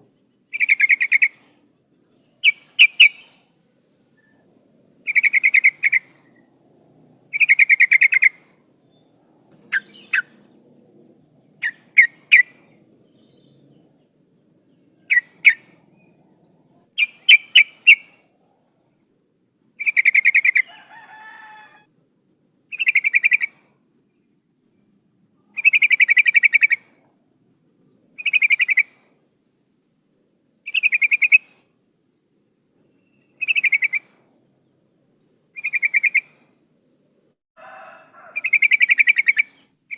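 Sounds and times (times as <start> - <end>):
bird chattering calls: 0.5 - 1.6, 2.4 - 3.5, 4.2 - 8.6, 9.6 - 10.8, 11.4 - 12.6, 15.1 - 15.8, 17.0 - 18.2, 19.8 - 20.7, 22.7 - 23.6, 25.6 - 26.9, 28.2 - 29.0, 30.7 - 31.6, 33.4 - 34.2, 35.6 - 36.4, 38.4 - 39.9
sharp bird chips: 2.4 - 3.6.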